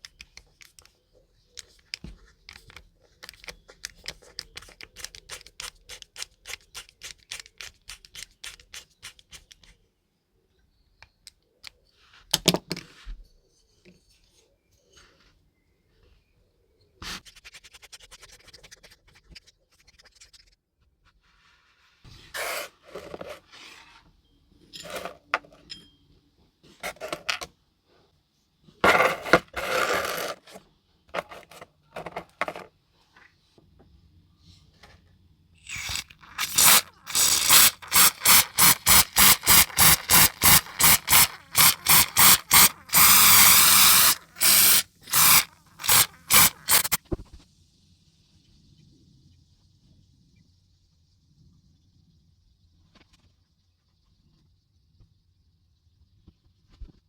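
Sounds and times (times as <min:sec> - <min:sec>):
hand tool scraping metal model: 0:22.3 - 0:23.8, 0:24.7 - 0:25.6, 0:28.8 - 0:30.6, 0:31.2 - 0:32.7, 0:35.7 - 0:47.0.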